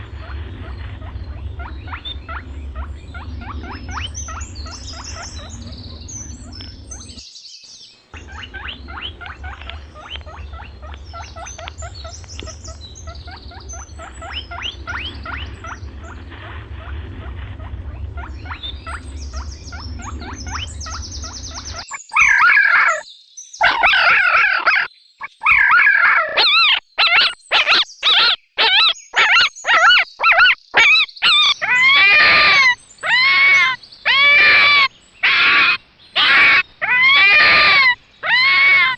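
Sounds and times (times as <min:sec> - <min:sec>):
steady low hum: 0:00.0 - 0:07.2, 0:08.0 - 0:21.9
high chirps and squeaks: 0:00.2 - 0:07.2, 0:08.2 - 0:23.0, 0:26.4 - 0:38.9
animal squealing calls: 0:08.2 - 0:23.0, 0:23.6 - 0:38.9.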